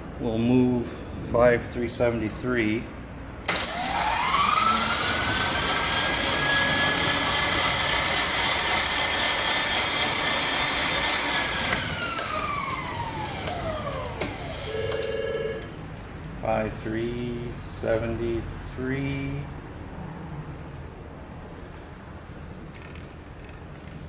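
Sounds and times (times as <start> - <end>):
milling machine motor whine: 3.5 - 15.7.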